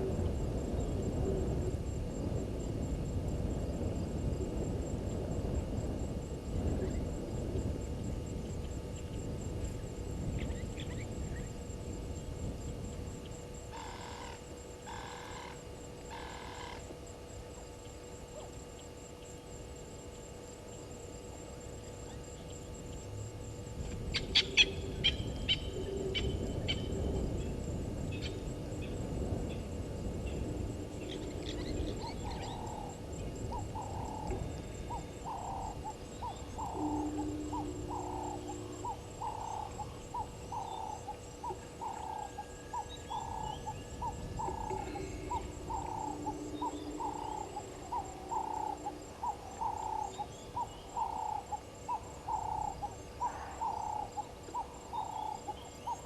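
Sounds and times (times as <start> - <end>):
low outdoor rumble: 0.0 - 56.0
wild birds calling: 10.3 - 11.6, 13.2 - 19.4, 21.8 - 56.0.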